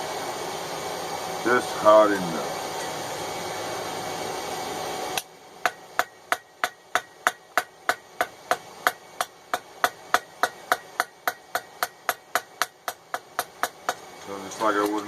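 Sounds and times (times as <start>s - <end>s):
hammer ringing on anvil: 5.7s - 8.4s.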